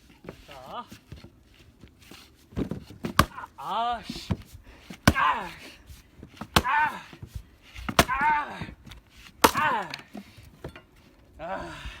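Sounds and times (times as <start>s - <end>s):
axe chopping log: 2.6s - 5.6s, 6.4s - 8.8s, 9.4s - 10.2s
short vocal cry: 6.6s - 7.2s, 8.0s - 8.7s.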